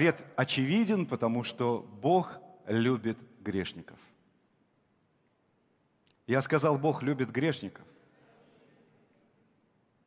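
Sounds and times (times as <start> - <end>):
man preaching: 0.0 - 4.1, 6.2 - 7.9.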